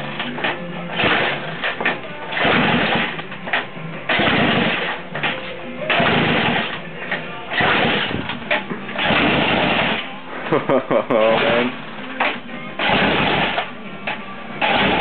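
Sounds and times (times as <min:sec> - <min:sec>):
motorcycle engine cranking: 0:00.0 - 0:10.1, 0:11.2 - 0:15.0.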